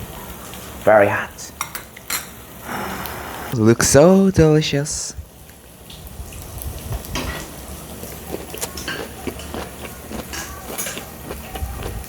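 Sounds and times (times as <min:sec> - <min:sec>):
utensils clicking against dishes: 0:07.2 - 0:12.0.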